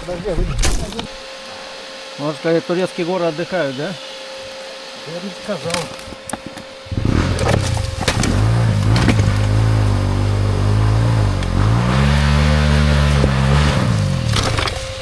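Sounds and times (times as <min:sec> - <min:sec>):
dirt bike engine revving: 0:05.0 - 0:15.0.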